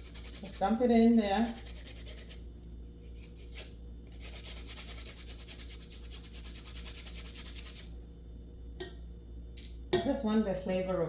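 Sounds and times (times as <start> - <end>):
ginger rasping on a hand grater: 0.0 - 2.4, 3.2 - 7.8.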